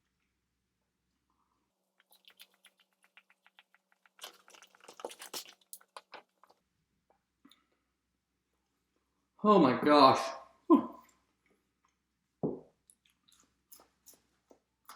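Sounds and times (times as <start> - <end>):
person chewing food: 1.8 - 7.7.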